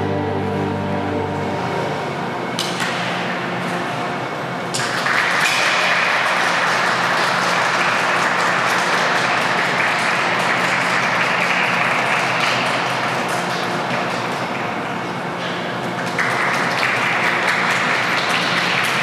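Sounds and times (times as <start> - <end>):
audience applauding: 4.8 - 13.2.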